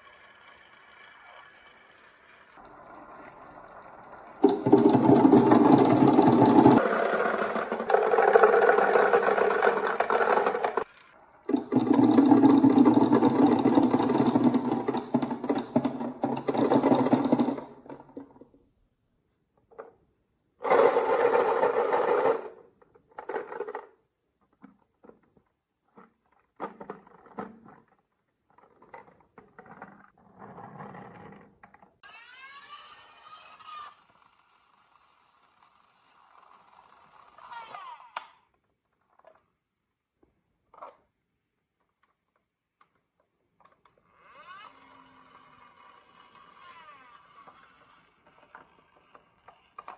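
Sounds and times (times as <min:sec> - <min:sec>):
marbles rolling on wooden run: 0:00.0 - 0:10.9, 0:11.5 - 0:18.5, 0:20.6 - 0:24.0.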